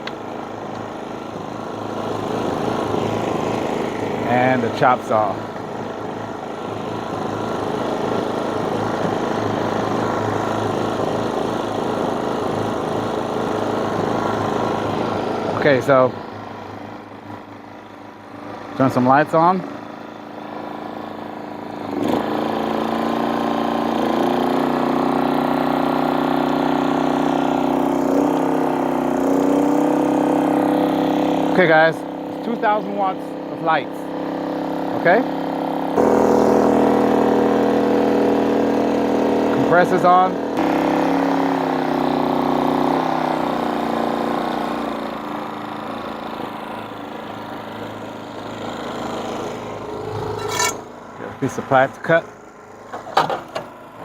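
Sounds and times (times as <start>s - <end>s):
generator engine running: 0.0s - 54.0s.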